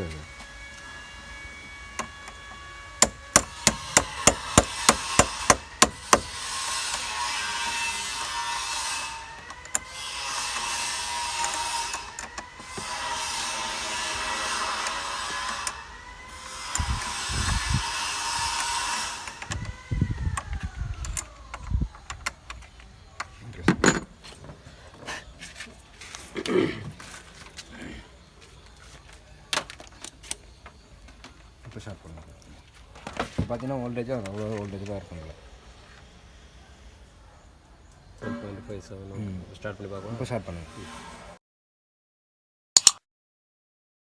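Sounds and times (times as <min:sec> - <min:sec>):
power tool whirring: 0:00.0 - 0:24.8
tool clicking: 0:02.0 - 0:07.1, 0:09.4 - 0:13.0, 0:14.1 - 0:24.1.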